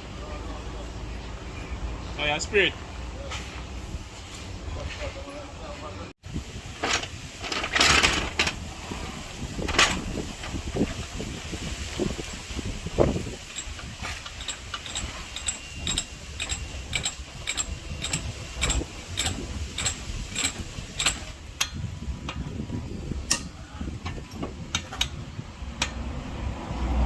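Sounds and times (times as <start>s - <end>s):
low shop rumble: 0.0s - 11.3s
ratchet wrench clicking: 13.5s - 22.4s.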